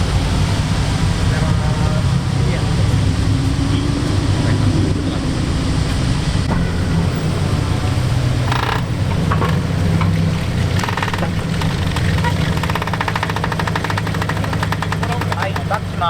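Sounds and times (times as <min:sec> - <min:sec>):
car engine and exhaust rumbling: 0:00.0 - 0:16.0
rapid rattling bursts: 0:06.5 - 0:16.0.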